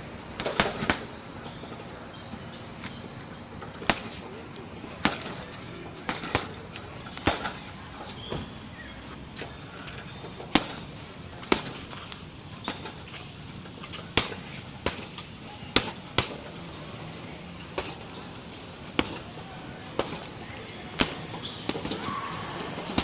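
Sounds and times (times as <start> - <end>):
hits on heavy punching bag: 21.0 - 22.2.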